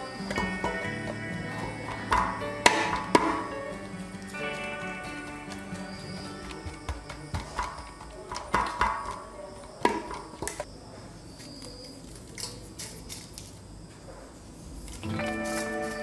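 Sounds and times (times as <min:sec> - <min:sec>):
background music: 0:00.0 - 0:08.0, 0:15.0 - 0:16.0.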